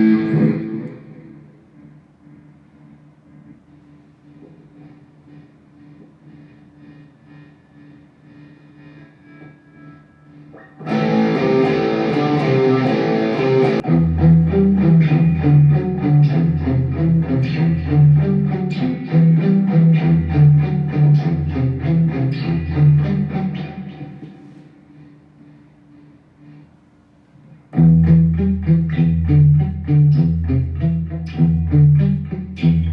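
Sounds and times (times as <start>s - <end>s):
deep low guitar part: 0.0s - 2.0s, 10.6s - 24.5s, 27.7s - 32.9s
electric guitar playing: 0.0s - 2.5s, 9.2s - 24.6s, 27.7s - 32.9s
faint ringing tone: 9.2s - 10.6s.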